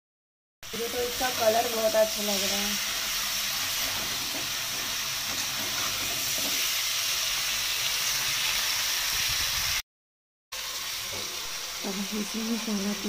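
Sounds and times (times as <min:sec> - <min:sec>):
meat and onions sizzling in oil: 0:00.6 - 0:09.8, 0:10.5 - 0:13.0
steel spatula stirring: 0:03.0 - 0:06.8.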